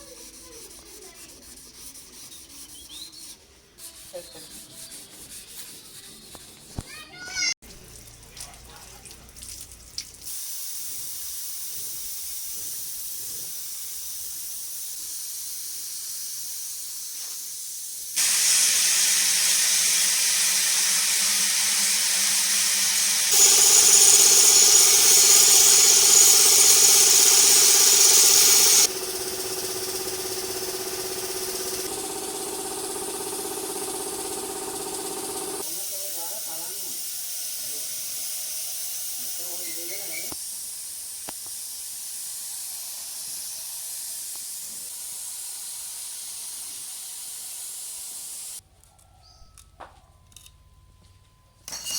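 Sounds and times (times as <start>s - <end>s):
paint spray gun hissing: 10.3s - 48.6s.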